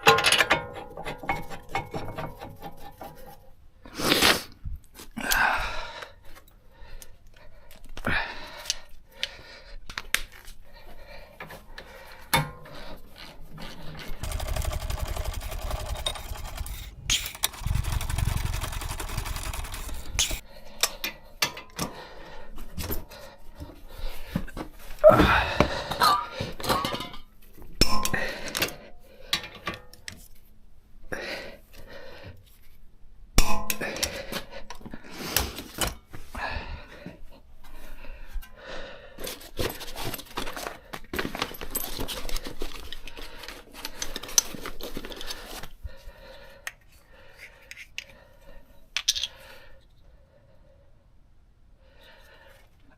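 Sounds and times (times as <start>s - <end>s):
metal tools clinking: 14.2s - 20.4s
steady mechanical noise: 14.2s - 20.4s.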